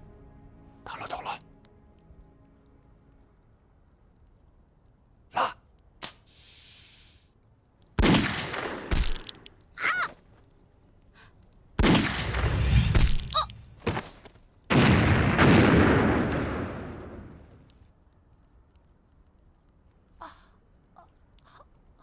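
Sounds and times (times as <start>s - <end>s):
grenade fuse hissing: 6.0s - 7.4s
grenade explosions: 8.0s - 9.4s, 11.8s - 13.8s, 14.7s - 17.7s
gunfire: 8.0s - 9.4s, 11.8s - 13.3s, 14.7s - 17.5s.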